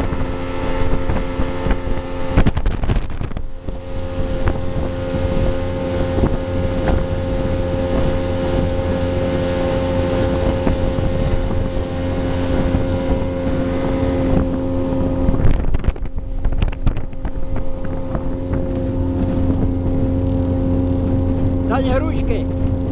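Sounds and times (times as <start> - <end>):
motorboat engine running: 0.0 - 22.9
rushing water: 0.0 - 22.9
wind buffeting microphone: 0.0 - 22.9.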